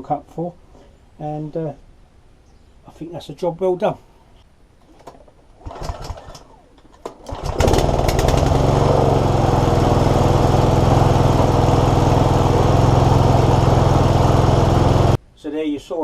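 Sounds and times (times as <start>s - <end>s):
lawnmower engine running: 5.6s - 15.2s.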